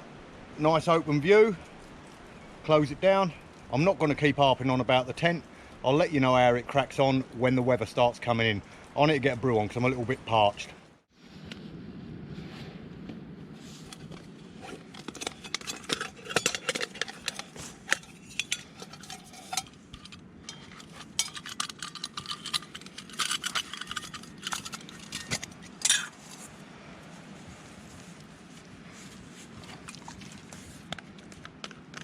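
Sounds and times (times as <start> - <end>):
metal scrape: 13.6 - 26.5
metal cookware clinking: 14.9 - 26.2.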